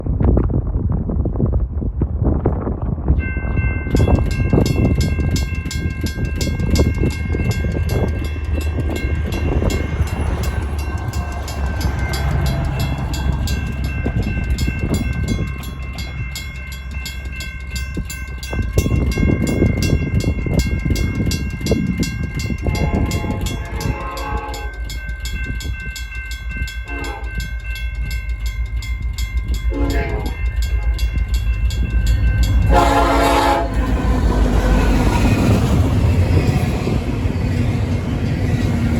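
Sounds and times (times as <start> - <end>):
mechanical striking bell: 3.2 - 33.5
electronic crossing bell ringing: 3.2 - 33.8
train horn blasts: 22.6 - 24.9, 26.8 - 27.5, 29.7 - 31.0, 32.5 - 34.1.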